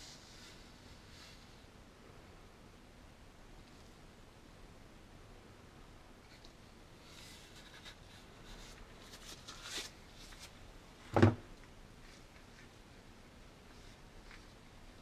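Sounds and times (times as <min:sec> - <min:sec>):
rubbing and scraping handling noises: 0:06.2 - 0:11.1, 0:11.9 - 0:13.0, 0:13.6 - 0:15.0.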